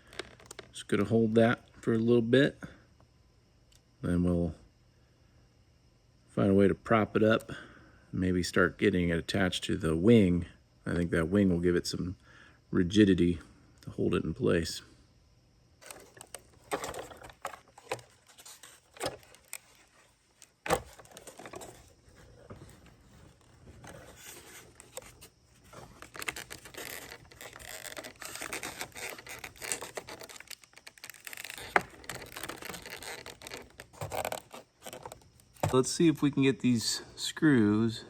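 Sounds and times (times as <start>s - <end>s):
foam model scrapes and rustles: 15.8s - 35.3s.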